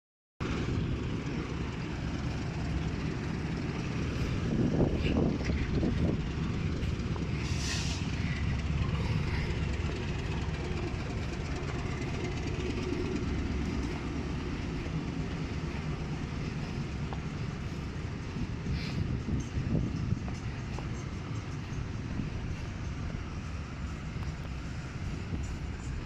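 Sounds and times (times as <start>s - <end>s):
train rumbling: 0.4s - 26.0s
short hiss: 7.4s - 8.4s.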